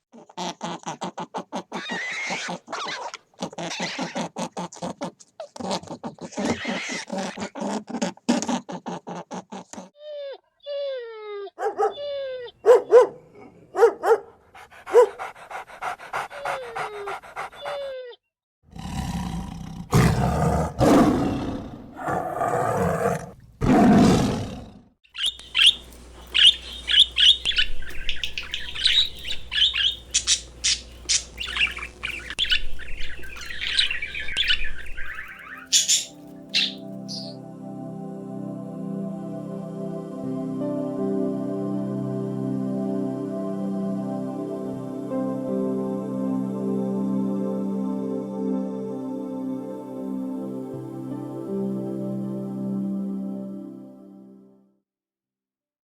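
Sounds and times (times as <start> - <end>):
rough noisy animal calls: 0.2 - 9.9, 25.1 - 37.4
rapid high-pitched chirping: 25.1 - 37.4.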